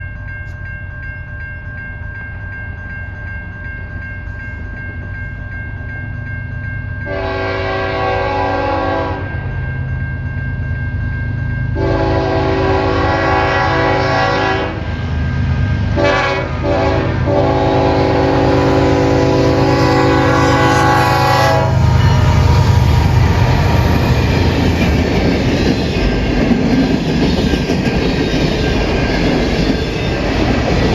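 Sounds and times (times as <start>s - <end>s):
diesel locomotive engines rumbling: 2.1s - 30.9s
train air horn blasts: 7.1s - 9.3s, 11.8s - 15.0s, 15.9s - 24.3s.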